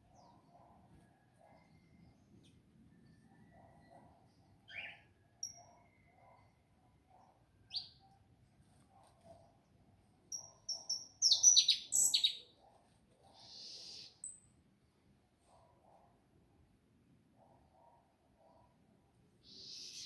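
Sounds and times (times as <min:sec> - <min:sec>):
small songbirds chirping: 0:00.0 - 0:00.6, 0:01.4 - 0:06.6, 0:07.2 - 0:08.2, 0:10.3 - 0:12.6, 0:13.3 - 0:14.5, 0:19.4 - 0:20.0.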